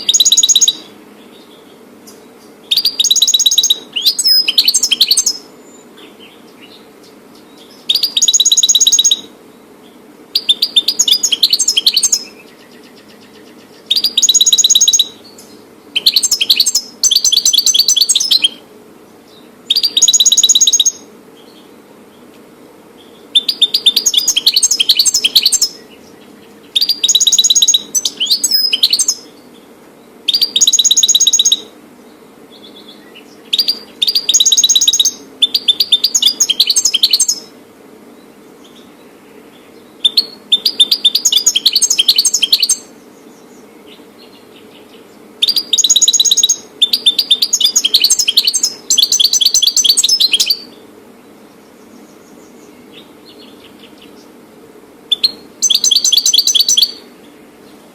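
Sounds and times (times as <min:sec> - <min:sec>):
goldfinch twittering: 0:00.0 - 0:00.9, 0:02.7 - 0:05.4, 0:07.6 - 0:09.3, 0:10.4 - 0:15.4, 0:16.0 - 0:18.6, 0:19.7 - 0:21.0, 0:23.4 - 0:26.0, 0:26.7 - 0:29.3, 0:30.3 - 0:31.6, 0:33.5 - 0:37.5, 0:40.0 - 0:42.9, 0:45.4 - 0:50.7, 0:55.1 - 0:57.0
faint steady hum: 0:00.0 - 0:57.9.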